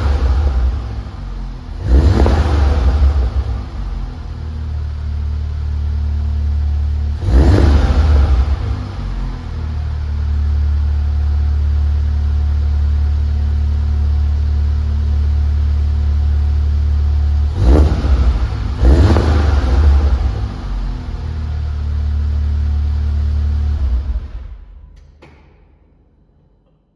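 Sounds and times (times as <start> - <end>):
car engine revving: 0.0 - 11.4, 17.2 - 24.8
car engine idling: 0.0 - 25.0.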